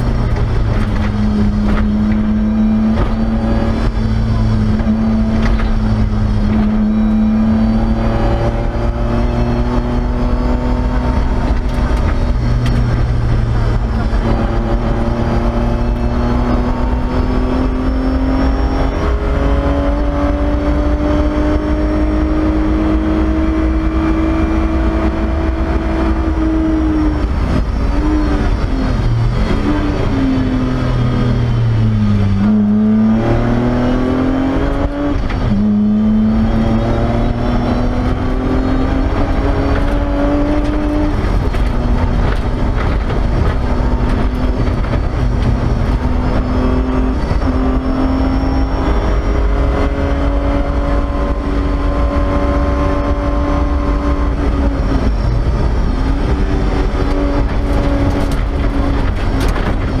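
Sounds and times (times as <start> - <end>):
car engine revving: 0.0 - 60.0
road and tyre noise: 0.0 - 60.0.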